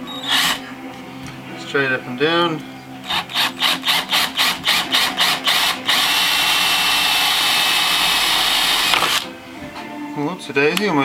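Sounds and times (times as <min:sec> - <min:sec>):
drill boring into wood: 0:00.2 - 0:00.6, 0:03.0 - 0:09.3.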